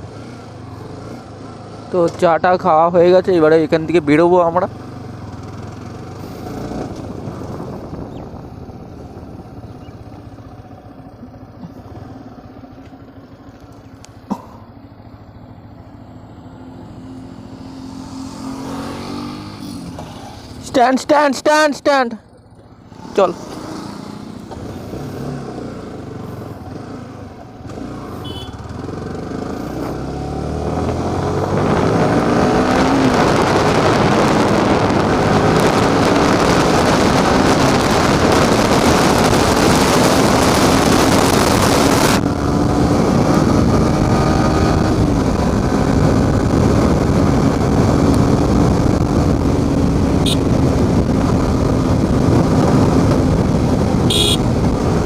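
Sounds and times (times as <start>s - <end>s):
motorcycle engine accelerating: 0.0s - 55.0s
wind rushing over microphone: 6.1s - 10.4s, 28.8s - 55.0s.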